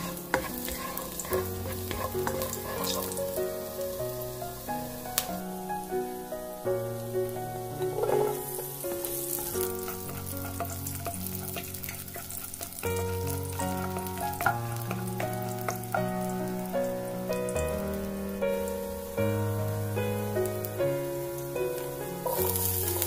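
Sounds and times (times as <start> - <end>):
spatula scraping a wok: 0.0 - 3.8, 7.9 - 16.3, 22.2 - 23.0
garlic sizzling in hot oil: 0.0 - 23.0
soft background music: 0.0 - 23.0.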